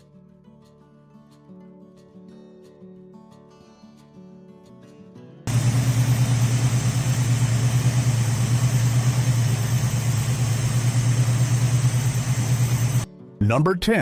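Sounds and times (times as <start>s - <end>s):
car engine idling: 5.5s - 13.0s.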